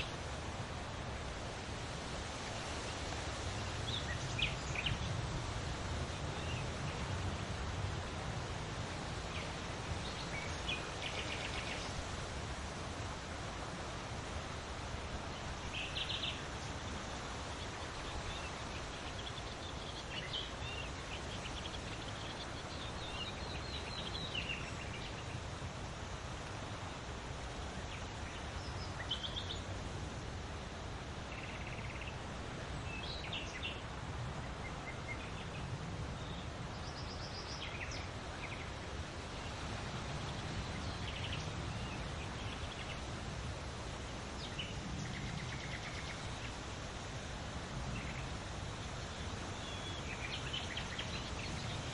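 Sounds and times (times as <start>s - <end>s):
steady wind: 0.0s - 51.9s
small birds chirping: 2.4s - 7.2s, 8.0s - 12.3s, 13.0s - 47.1s, 47.8s - 51.9s.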